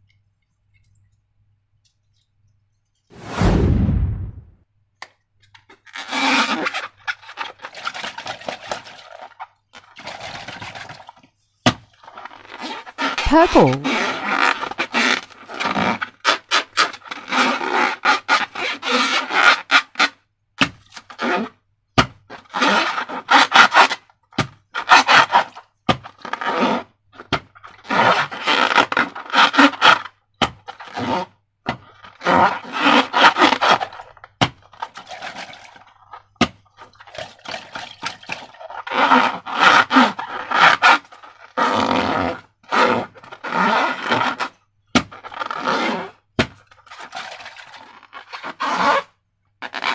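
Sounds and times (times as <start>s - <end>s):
balloons and slime squeaking: 5.9s - 7.8s, 12.0s - 20.2s, 32.0s - 36.4s, 38.5s - 46.2s, 46.9s - 49.9s.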